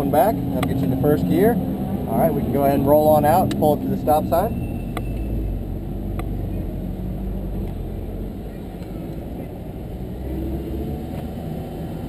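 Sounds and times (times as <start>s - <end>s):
car engine running low: 0.0s - 12.0s.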